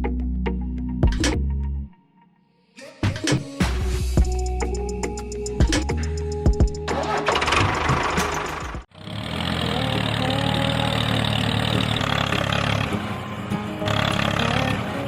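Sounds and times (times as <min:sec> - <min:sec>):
engine running steadily: 0:06.9 - 0:15.0.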